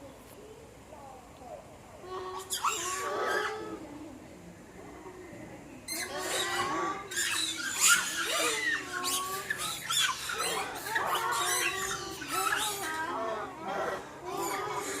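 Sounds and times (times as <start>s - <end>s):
macaques squealing and screeching: 2.4s - 3.8s, 5.9s - 15.0s.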